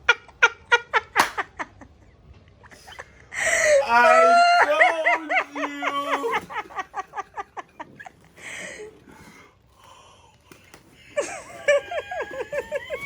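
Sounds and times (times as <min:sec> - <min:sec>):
woman laughing: 0:02.7 - 0:08.1, 0:11.2 - 0:13.0.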